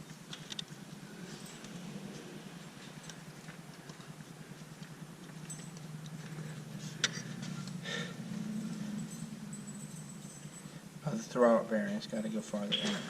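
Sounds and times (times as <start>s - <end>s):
small metallic clicks and clinks: 0.0s - 7.8s
steady low hum: 0.0s - 13.0s.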